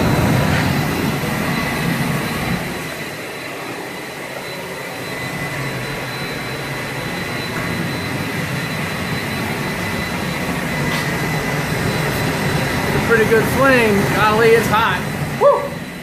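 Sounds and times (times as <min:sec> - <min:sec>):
faint high whine: 0:00.0 - 0:16.0
gas forge burner roaring: 0:00.0 - 0:16.0.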